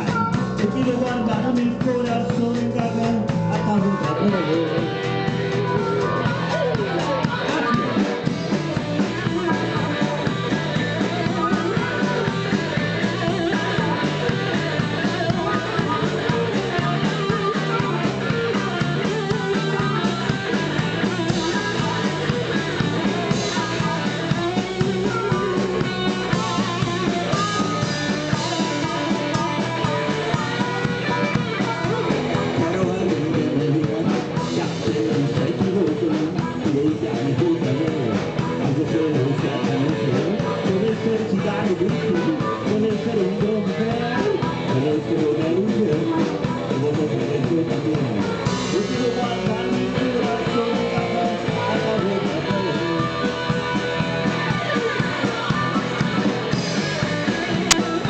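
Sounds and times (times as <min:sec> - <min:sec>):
drum kit: 0:00.0 - 0:58.0
electric guitar: 0:00.0 - 0:58.0
person singing: 0:00.0 - 0:58.0.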